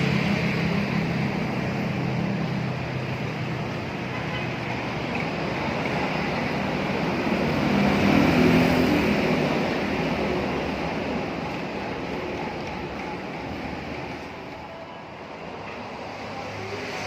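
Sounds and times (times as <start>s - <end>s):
street traffic noise: 0.0s - 17.0s
vehicle engine passing: 5.0s - 13.5s.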